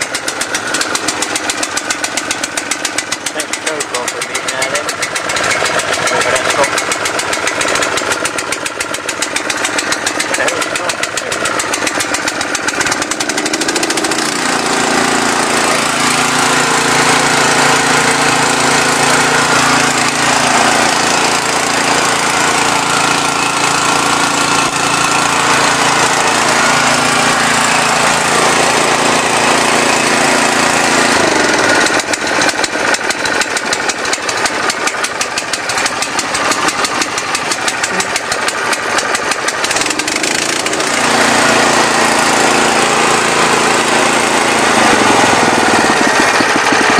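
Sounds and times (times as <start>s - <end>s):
petrol engine running: 0.0s - 46.9s.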